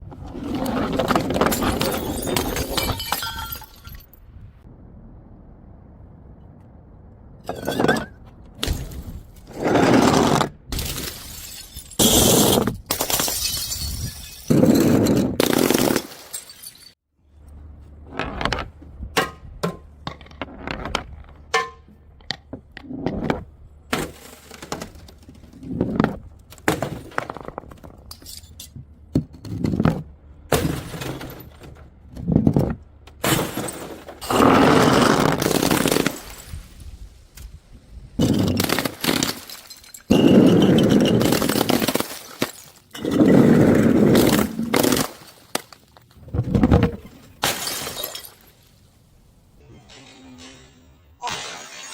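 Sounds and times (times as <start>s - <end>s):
glass bottles smashing on stairs: 1.0s - 4.2s, 10.7s - 17.0s, 30.5s - 31.8s, 33.2s - 36.6s, 38.2s - 45.9s, 46.8s - 48.7s
glass shards clattering down steps: 1.3s - 4.2s, 10.8s - 17.0s, 28.0s - 28.8s, 38.2s - 43.2s, 47.2s - 48.7s.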